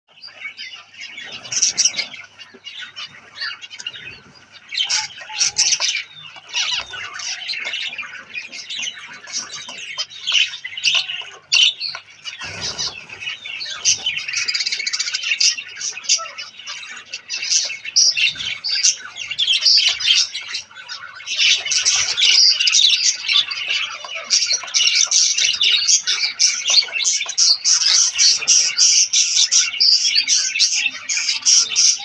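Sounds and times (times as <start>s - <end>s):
finches chirping: 0.1s - 32.0s.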